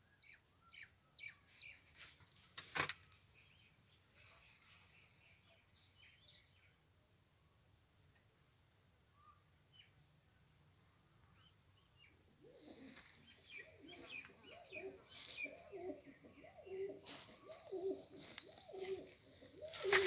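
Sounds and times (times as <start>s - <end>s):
faint higher chirps: 10.9s - 20.0s
pigeons cooing: 12.3s - 20.0s.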